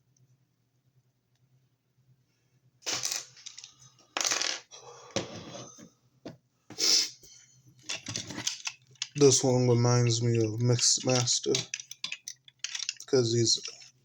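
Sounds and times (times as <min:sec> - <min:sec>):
plastic toy parts clicking: 0:07.8 - 0:14.0.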